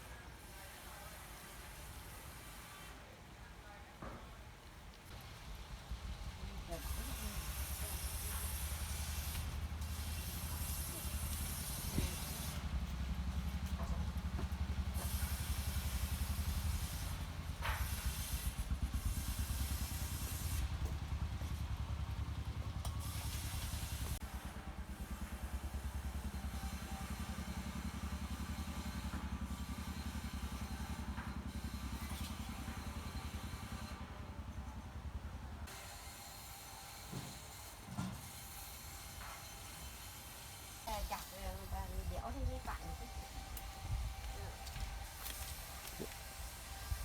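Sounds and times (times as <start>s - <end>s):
motor running with low pulse: 5.0s - 47.0s
hiss: 6.6s - 12.7s, 14.9s - 20.8s.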